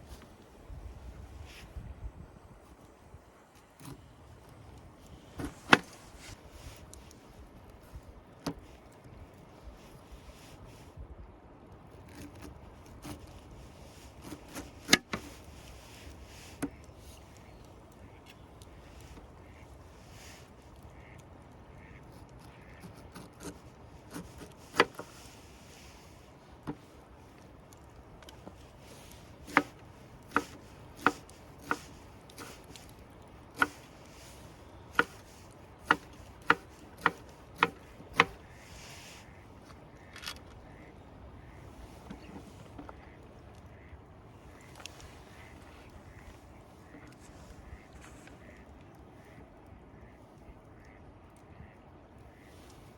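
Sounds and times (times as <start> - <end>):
sharp clicks and knocks: 3.6 - 7.2, 22.8 - 25.3, 27.7 - 33.0, 33.6 - 38.4.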